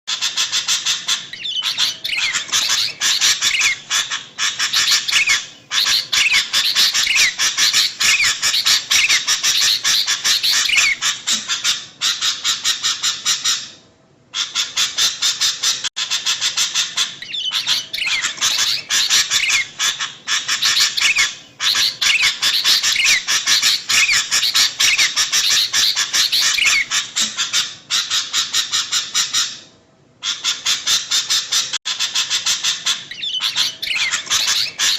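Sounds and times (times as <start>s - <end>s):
bulbuls chattering: 1.0s - 11.1s, 17.3s - 27.5s, 32.1s - 34.9s.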